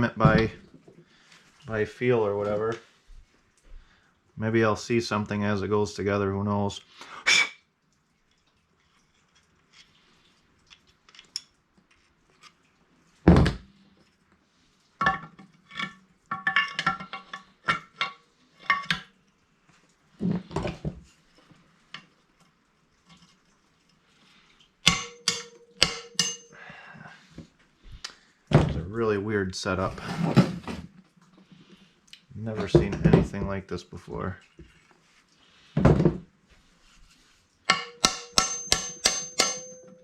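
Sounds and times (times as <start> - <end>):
heavy thump: 0.2 - 0.6
metal engine parts clinking: 15.0 - 19.1, 24.8 - 26.6, 37.7 - 40.0.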